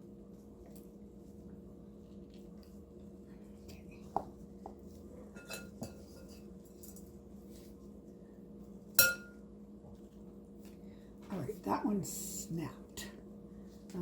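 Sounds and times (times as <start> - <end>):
kitchenware clicking and clinking: 5.3 - 6.4.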